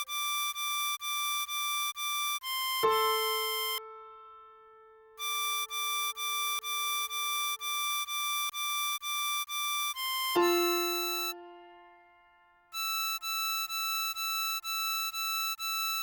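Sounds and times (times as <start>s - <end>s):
harmonica melody: 2.2s - 3.8s, 5.2s - 11.9s, 12.8s - 16.0s.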